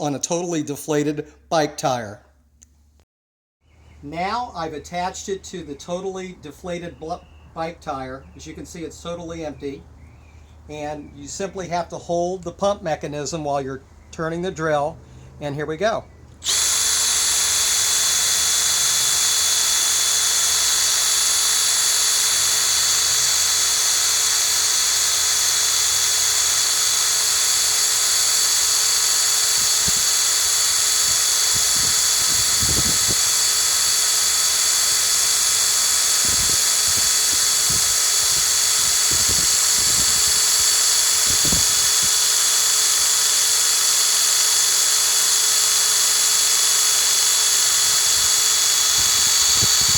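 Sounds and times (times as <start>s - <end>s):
cordless drill whining: 16.3s - 49.9s.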